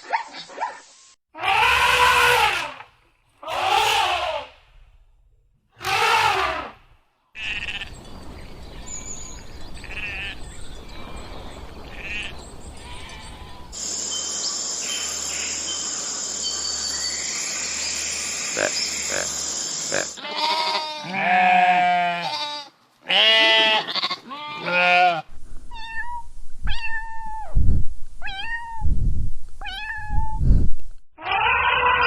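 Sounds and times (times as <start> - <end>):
sheep bleating: 19.9 - 25.3, 31.2 - 32.0.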